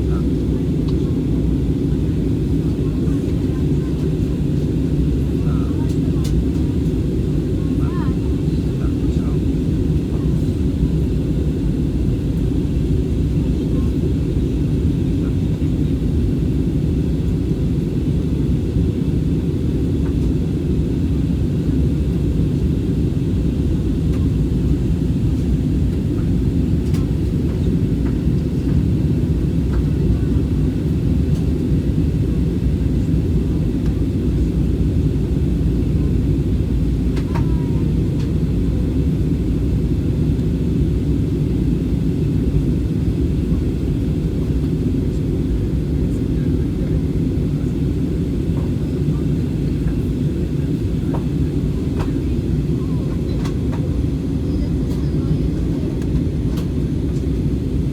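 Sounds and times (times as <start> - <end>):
jet airliner cabin rumble: 0.0 - 57.9.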